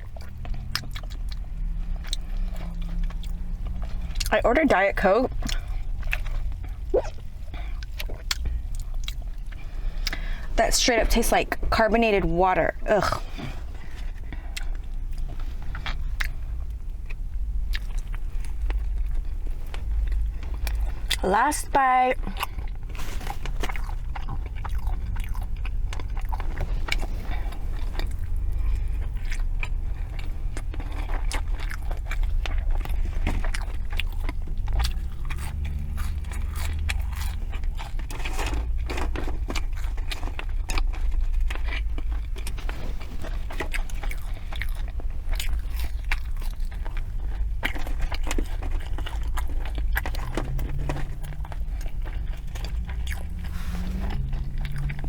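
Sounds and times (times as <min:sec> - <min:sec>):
close-miked chewing: 0:00.0 - 0:55.0
low hum: 0:48.2 - 0:55.0.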